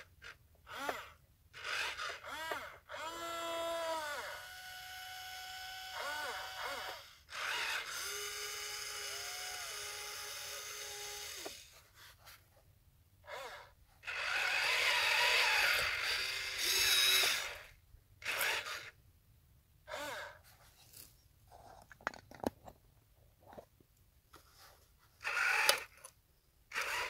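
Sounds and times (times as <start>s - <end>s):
small electric motors whirring: 0.0s - 11.8s, 13.2s - 19.0s, 19.9s - 21.1s, 25.2s - 27.0s.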